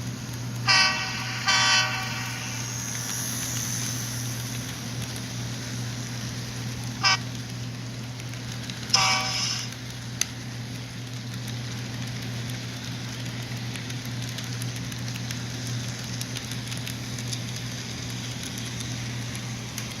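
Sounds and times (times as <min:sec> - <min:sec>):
model train motor hum: 0:00.0 - 0:07.5, 0:08.3 - 0:10.3
wheels clicking on rails: 0:00.0 - 0:20.0.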